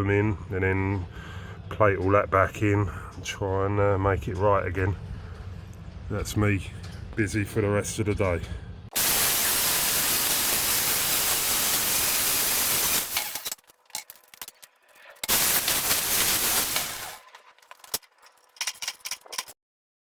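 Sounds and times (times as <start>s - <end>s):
welding arc crackling: 8.9s - 18.6s.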